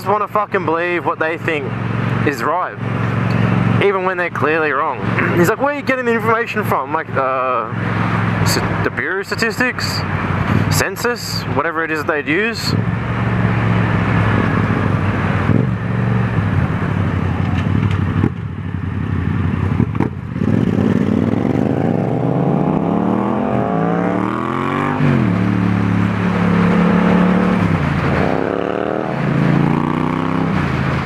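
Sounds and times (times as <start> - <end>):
motorcycle engine accelerating: 12.8 - 31.0
wind noise: 14.1 - 18.4.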